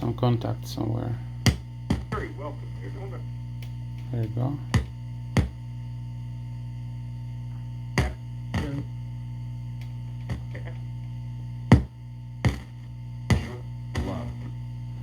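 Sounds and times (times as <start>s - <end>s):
mains hum from speaker: 0.0s - 15.0s
sharp pops and crackles: 1.4s - 2.3s, 3.6s - 5.6s, 11.7s - 14.3s.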